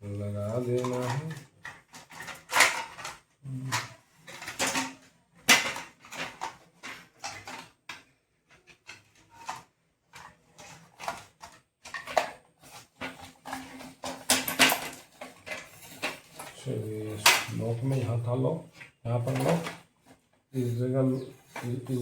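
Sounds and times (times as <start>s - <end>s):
plastic clicks and rattles: 0.6s - 18.1s, 18.7s - 20.3s.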